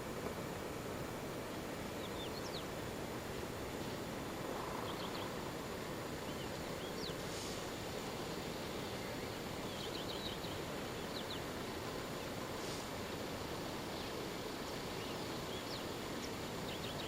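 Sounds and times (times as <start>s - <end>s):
outdoor background hiss: 0.0s - 17.0s
birds chirping: 4.6s - 5.5s.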